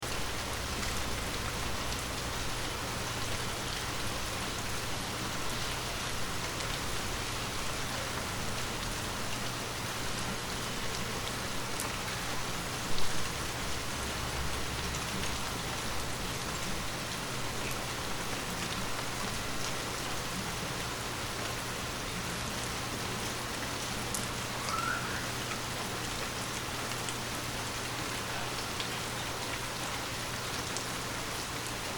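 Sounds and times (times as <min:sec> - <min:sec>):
steady rain falling: 0:00.0 - 0:31.9.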